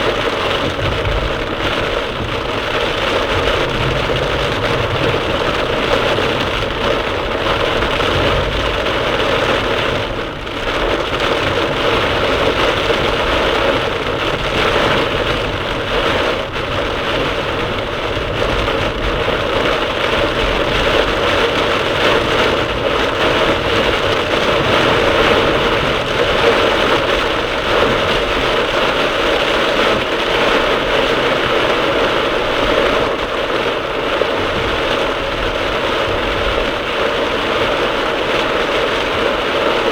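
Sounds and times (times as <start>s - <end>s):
car road noise: 0.0s - 30.8s
heavy rain pounding on car: 0.0s - 39.9s.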